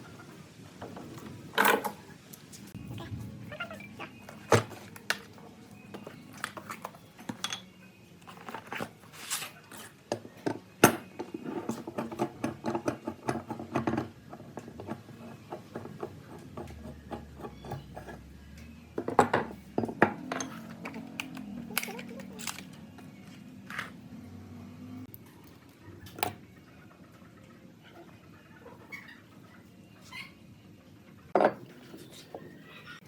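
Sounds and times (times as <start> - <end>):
tools clinking on workbench: 7.3 - 7.7, 19.0 - 22.8.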